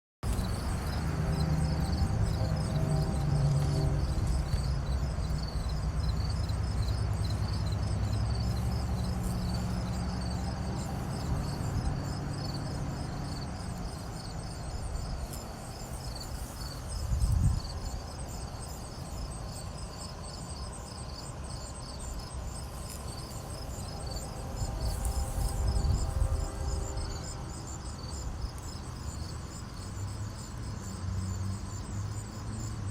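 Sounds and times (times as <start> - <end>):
low rumbles: 0.2 - 16.2
insects chirping trill: 0.2 - 32.9.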